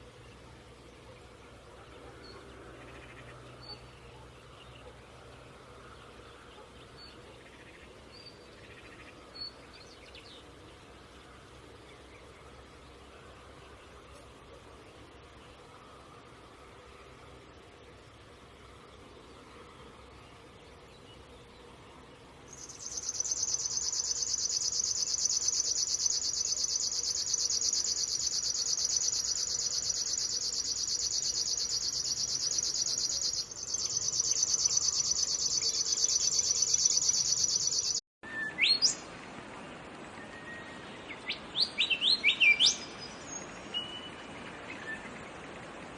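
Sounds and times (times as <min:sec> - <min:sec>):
songbird high-pitched trill: 0:22.5 - 0:39.0
bird whistled chirps: 0:22.6 - 0:39.0.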